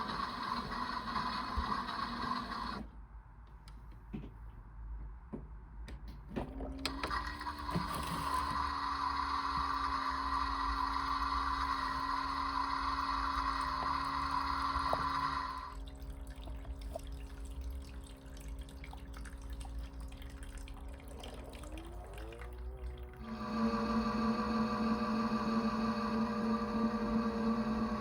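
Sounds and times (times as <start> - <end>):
water pouring with whine: 0.0 - 2.8, 6.5 - 28.0
motor winding up: 0.0 - 2.9, 6.8 - 15.8, 21.0 - 28.0
low hum: 8.4 - 28.0
water dripping: 13.4 - 23.2.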